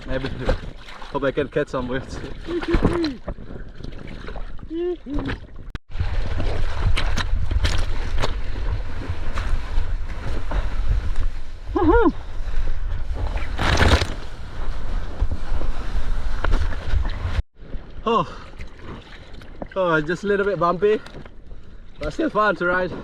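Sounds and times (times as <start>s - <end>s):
rushing sea water: 0.0s - 23.0s
person whooping: 2.5s - 3.2s, 11.7s - 12.2s.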